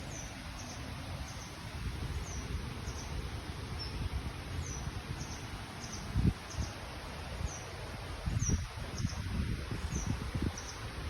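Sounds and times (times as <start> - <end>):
bird chirping: 0.0 - 3.2, 3.8 - 6.8.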